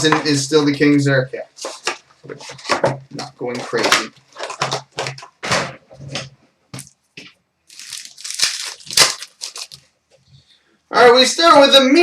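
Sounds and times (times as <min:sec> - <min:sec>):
cards shuffling: 0:01.6 - 0:05.4
wrapper tearing and crinkling: 0:03.6 - 0:05.3, 0:07.7 - 0:09.9.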